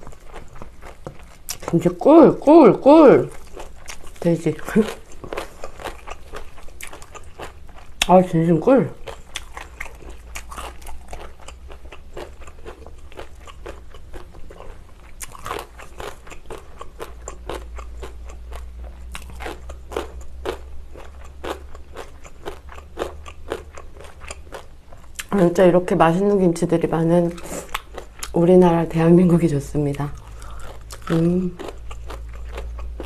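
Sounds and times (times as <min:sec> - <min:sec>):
crisp crunching of chewing: 0:00.0 - 0:01.9, 0:03.2 - 0:08.1, 0:08.9 - 0:25.3, 0:29.9 - 0:33.0.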